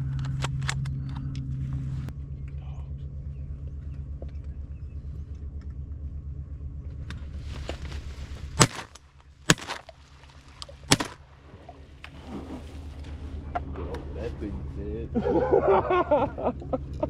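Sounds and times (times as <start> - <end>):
low motor rumble: 0.0 - 17.0
shotgun shots: 8.6 - 9.9, 10.9 - 11.2.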